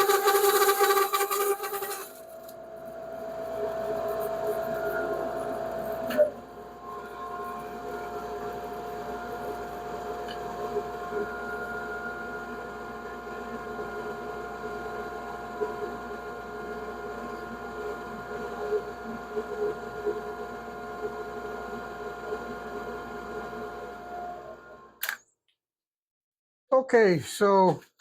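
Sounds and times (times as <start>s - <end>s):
bandsaw cutting wood: 0.0s - 2.2s
dust collector running: 0.0s - 15.3s.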